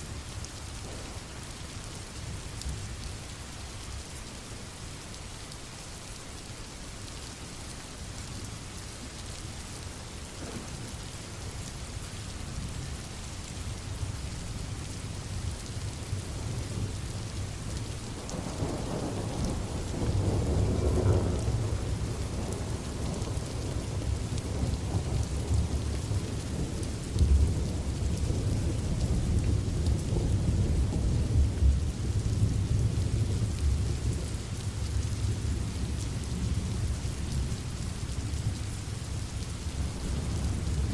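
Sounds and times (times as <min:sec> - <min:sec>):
steady rain: 0:00.0 - 0:40.9
rolling thunder: 0:18.2 - 0:34.4, 0:39.8 - 0:40.9.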